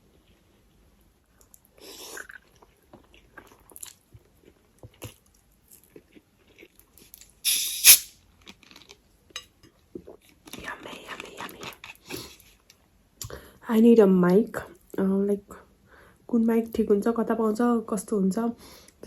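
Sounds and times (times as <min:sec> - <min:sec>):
person chewing food: 0:02.1 - 0:07.2.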